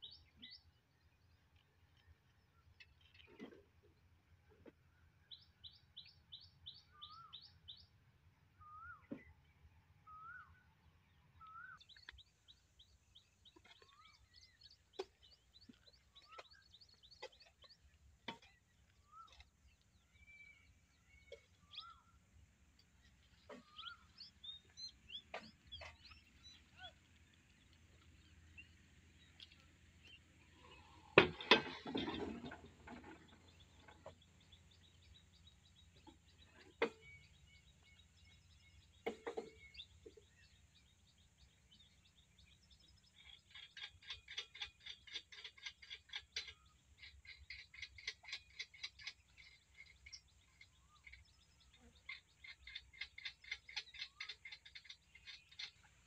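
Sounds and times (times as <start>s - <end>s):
birds chirping: 11.4s - 56.0s
hose and fittings clattering: 31.2s - 34.1s.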